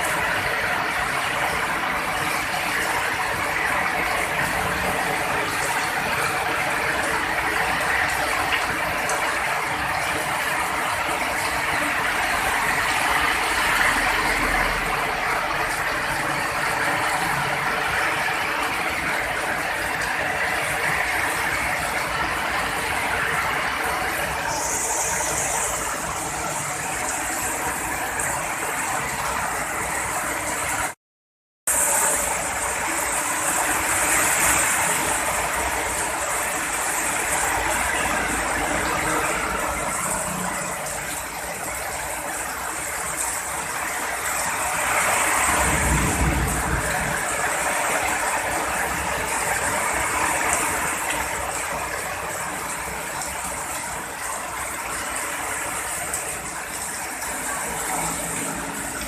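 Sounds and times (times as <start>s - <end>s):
heavy rain pouring: 0.0s - 31.0s, 31.7s - 59.0s
low rumble of thunder: 45.5s - 47.7s.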